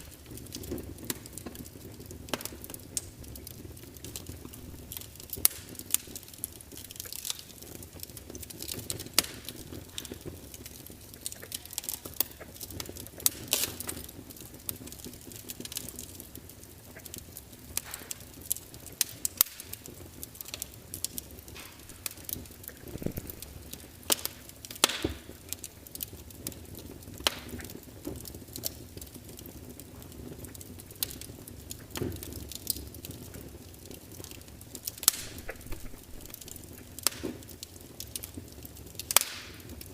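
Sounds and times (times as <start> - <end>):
log fire crackling and popping: 0.0 - 39.9
hiss of flame: 21.4 - 25.6, 34.9 - 37.6.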